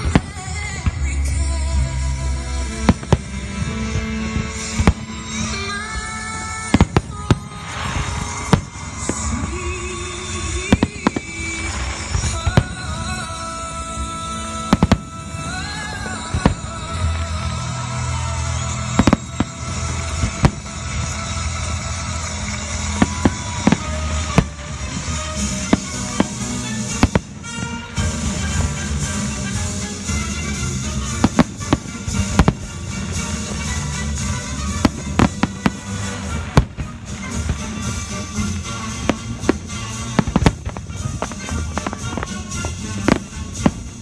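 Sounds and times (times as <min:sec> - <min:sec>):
background music: 0:00.0 - 0:44.0
firework shells bursting: 0:02.8 - 0:13.4, 0:14.5 - 0:17.3, 0:18.1 - 0:44.0.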